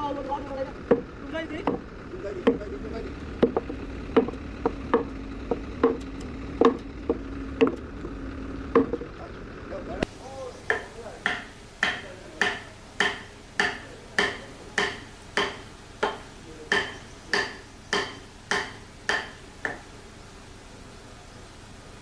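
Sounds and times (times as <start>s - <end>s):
ringing hammer blows: 10.0s - 20.0s.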